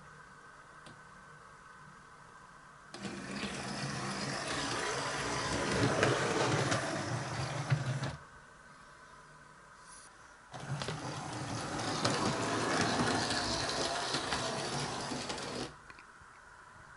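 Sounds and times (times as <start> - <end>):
model train motor whirring: 3.0 - 8.2, 10.6 - 15.8.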